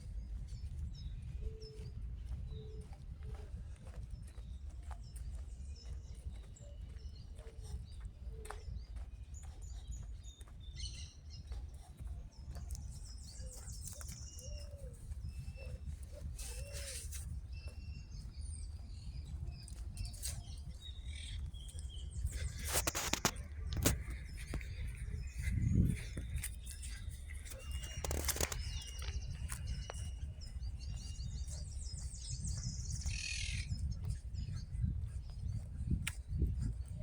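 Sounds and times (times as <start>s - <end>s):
birds chirping: 4.2s - 37.0s
sharp clicks: 27.5s - 30.0s.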